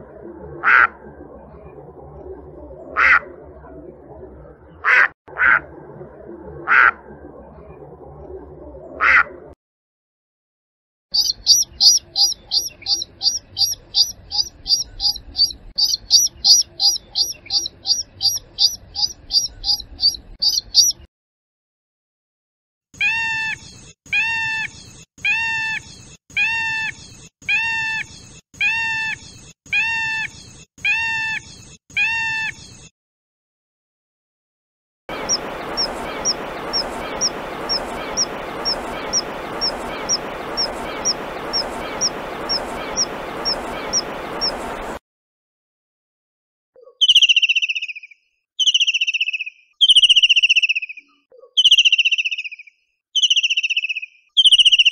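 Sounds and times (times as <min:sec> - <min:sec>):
water birds calling: 0:11.1 - 0:21.0, 0:35.1 - 0:45.0
steady hiss: 0:35.1 - 0:45.0.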